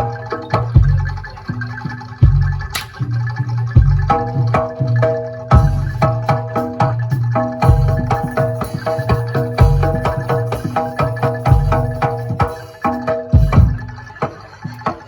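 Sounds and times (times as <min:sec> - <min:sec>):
gamelan percussion music: 0:00.0 - 0:15.0
deep bass drum strokes: 0:03.6 - 0:08.6, 0:13.4 - 0:14.1.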